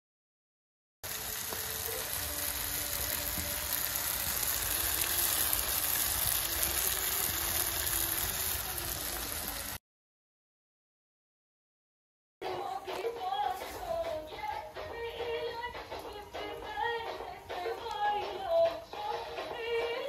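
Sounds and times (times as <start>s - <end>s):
rain falling steadily: 1.0s - 9.8s.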